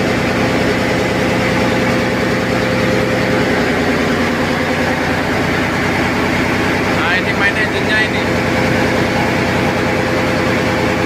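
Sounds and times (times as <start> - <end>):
diesel engine running: 0.0 - 11.0
steady hum: 0.0 - 11.0.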